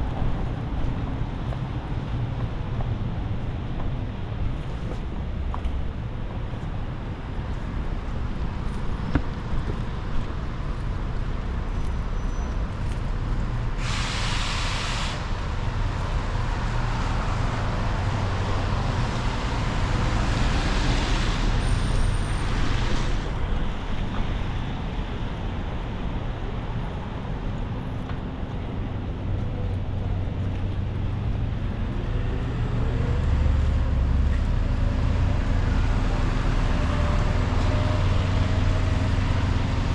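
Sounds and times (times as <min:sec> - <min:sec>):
traffic engine rumble: 0:00.0 - 0:39.9
tyre hiss on wet road: 0:13.6 - 0:23.4
short sharp hiss: 0:13.8 - 0:15.3.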